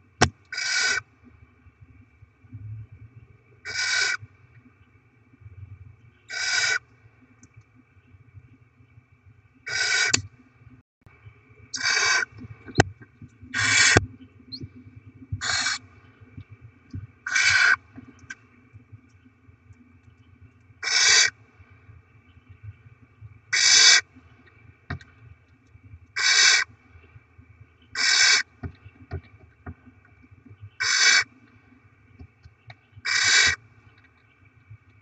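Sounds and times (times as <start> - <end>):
owl chicks hissing begging calls: 0.5 - 1.0, 3.7 - 4.2, 6.3 - 6.8, 9.7 - 10.2, 11.8 - 12.3, 13.6 - 14.0, 15.4 - 15.8, 17.3 - 17.8, 20.8 - 21.3, 23.5 - 24.0, 26.2 - 26.6, 28.0 - 28.4, 30.8 - 31.3, 33.0 - 33.6.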